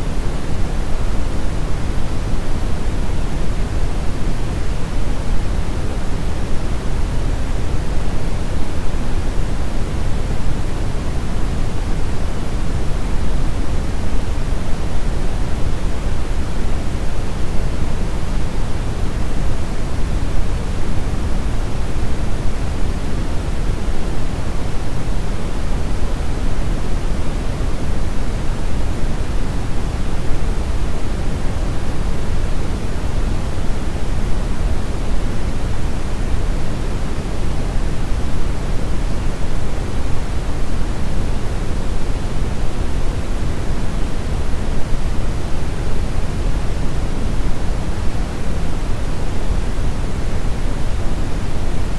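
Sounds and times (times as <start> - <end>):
brown noise hiss-rumble: 0.0 - 51.9.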